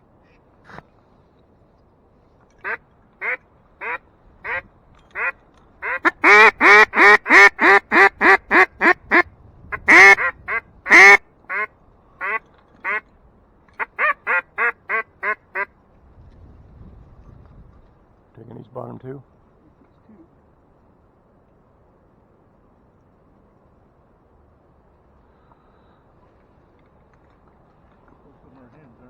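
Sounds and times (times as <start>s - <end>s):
duck call quacking: 2.6s - 4.6s, 5.2s - 13.0s, 13.8s - 15.7s.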